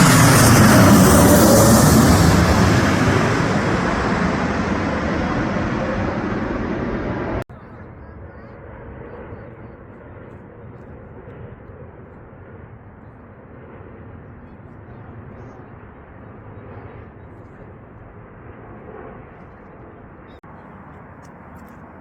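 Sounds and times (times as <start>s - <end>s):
jet engines rumbling: 0.0s - 7.5s.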